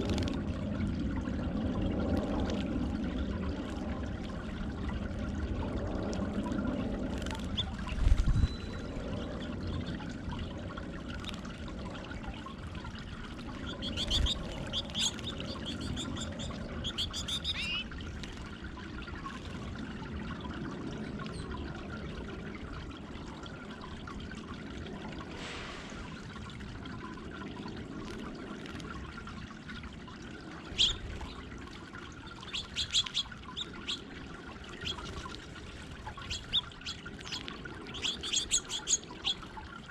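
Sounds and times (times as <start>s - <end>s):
water fountain trickling: 0.0s - 39.9s
small birds chirping: 13.6s - 18.0s, 30.7s - 31.4s, 32.2s - 34.1s, 34.7s - 35.4s, 36.0s - 39.5s.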